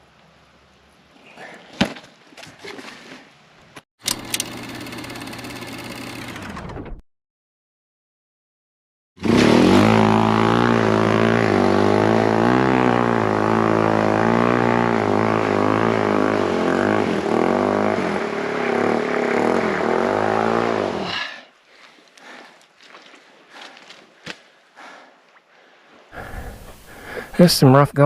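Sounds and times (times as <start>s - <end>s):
motorcycle engine revving: 4.1s - 6.6s, 9.2s - 21.2s.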